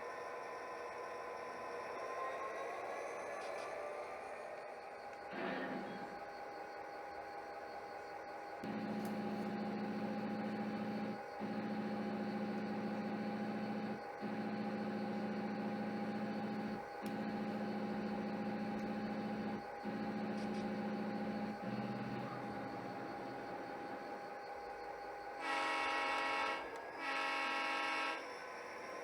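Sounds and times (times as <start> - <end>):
model locomotive electrical hum: 3.2 - 29.0
high whine: 8.6 - 24.4.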